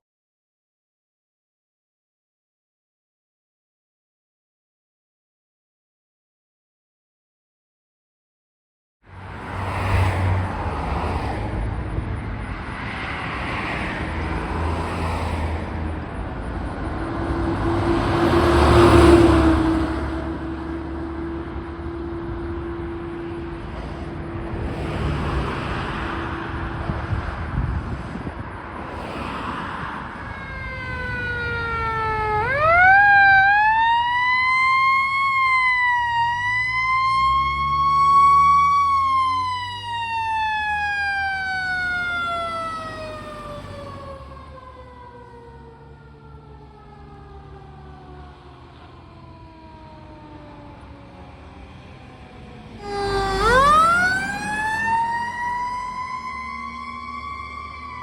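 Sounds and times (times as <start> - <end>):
truck engine and road noise: 9.0 - 58.0
mechanical siren wailing: 30.1 - 48.3, 52.6 - 58.0.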